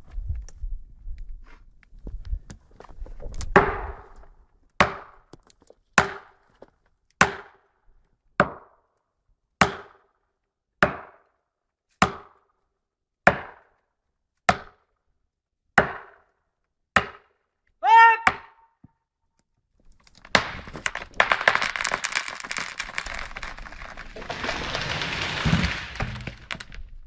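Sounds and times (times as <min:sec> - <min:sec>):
chopping into wood: 0:04.8 - 0:05.2, 0:06.0 - 0:06.4, 0:07.2 - 0:07.6, 0:09.6 - 0:10.1, 0:10.8 - 0:11.2, 0:12.0 - 0:12.4, 0:13.3 - 0:13.7, 0:14.5 - 0:14.8, 0:15.8 - 0:16.3, 0:17.0 - 0:17.3.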